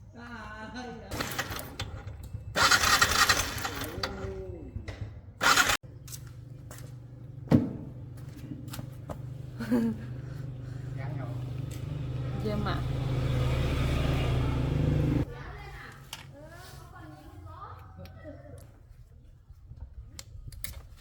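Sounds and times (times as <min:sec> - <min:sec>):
small motorcycle engine starting: 0:01.1 - 0:05.8, 0:11.7 - 0:15.3
motorcycle engine idling: 0:01.9 - 0:15.3.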